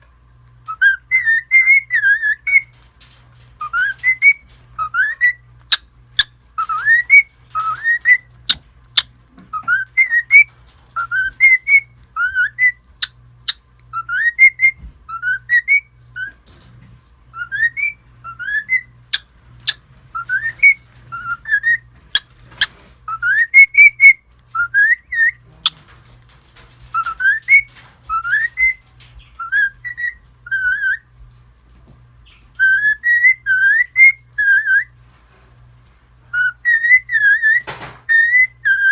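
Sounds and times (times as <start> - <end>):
cockatiel whistling: 0.7 - 2.7, 6.6 - 8.3, 9.5 - 12.8, 13.9 - 16.4, 17.4 - 18.9, 20.2 - 21.9, 23.1 - 25.4, 26.9 - 28.8, 29.4 - 31.1, 32.6 - 34.9, 36.3 - 38.9.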